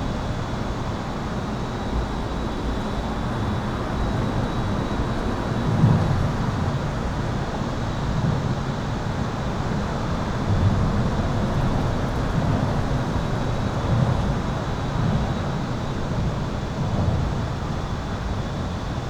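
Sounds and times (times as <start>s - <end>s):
highway traffic rumble: 9.4s - 16.6s.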